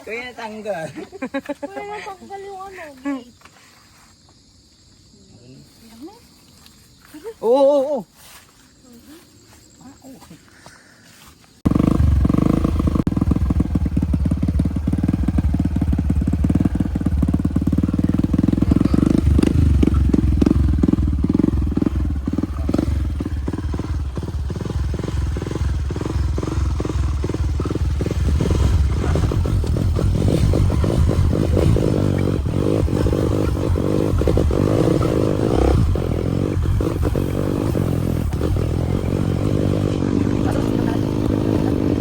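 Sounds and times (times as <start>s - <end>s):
motorcycle engine running: 11.6s - 42.0s.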